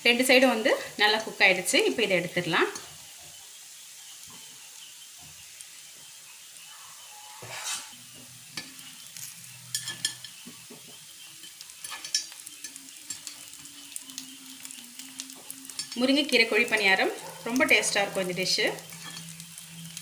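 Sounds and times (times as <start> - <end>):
food sizzling in oil: 0.0 - 20.0
utensil scraping a pan: 7.3 - 14.0, 18.8 - 19.9.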